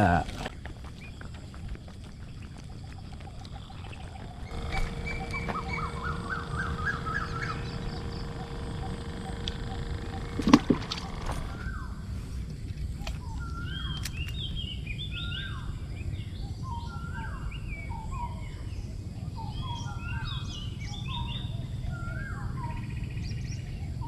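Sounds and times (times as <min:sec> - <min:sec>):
birds calling: 0:00.0 - 0:15.6
high bird chirps: 0:03.7 - 0:11.9.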